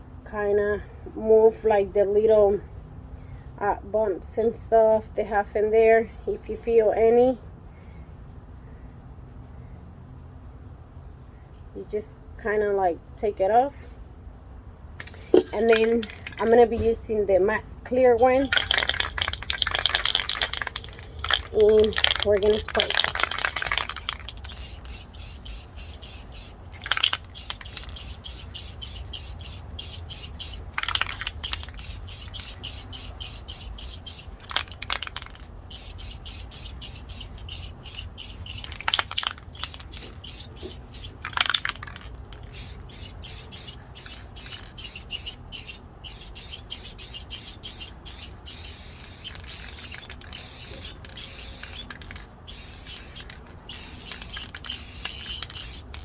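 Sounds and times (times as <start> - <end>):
aerosol can spraying: 15.0 - 16.8, 18.3 - 56.0
faint fast ticking: 18.4 - 56.0.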